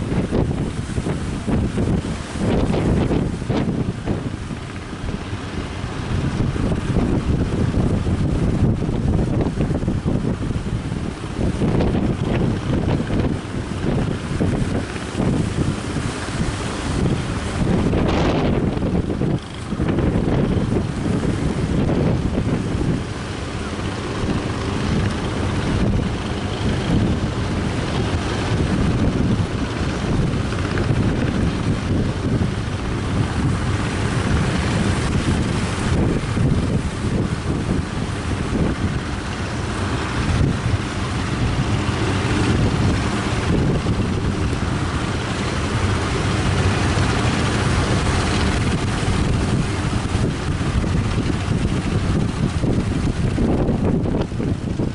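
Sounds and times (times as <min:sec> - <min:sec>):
breaking surf: 0:00.0 - 0:54.9
wind buffeting microphone: 0:00.0 - 0:54.9.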